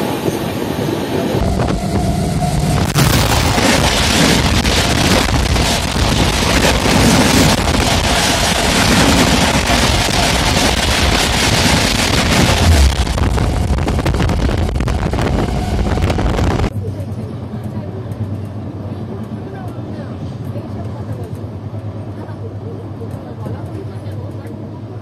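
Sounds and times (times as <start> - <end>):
wind buffeting microphone: 0.0 - 16.7
passing train rushing: 0.0 - 24.2.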